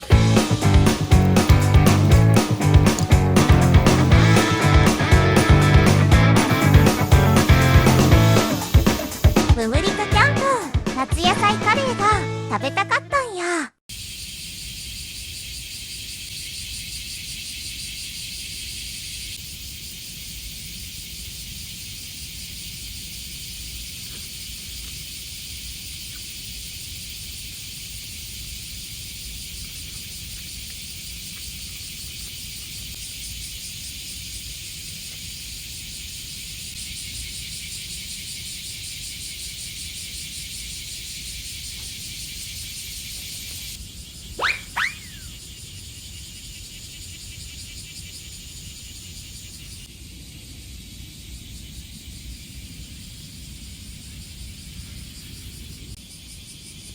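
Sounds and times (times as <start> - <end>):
cicadas buzzing: 0.0 - 12.9, 13.9 - 56.9.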